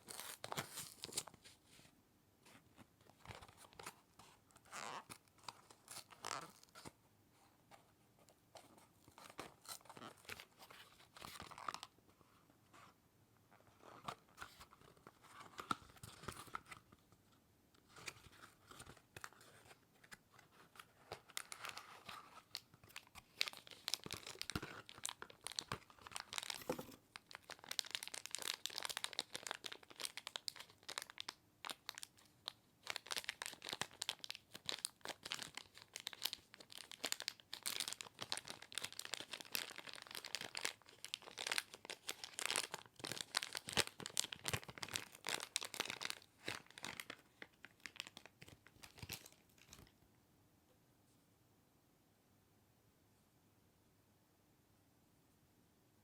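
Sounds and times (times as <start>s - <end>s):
packaging crinkling and tearing: 17.9s - 49.9s.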